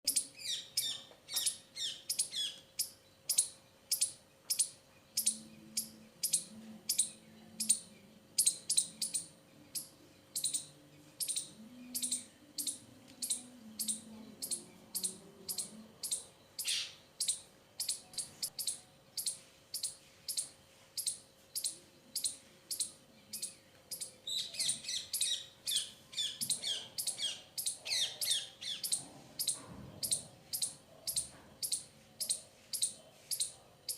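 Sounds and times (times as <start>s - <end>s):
small bird chirping: 0.0s - 33.9s.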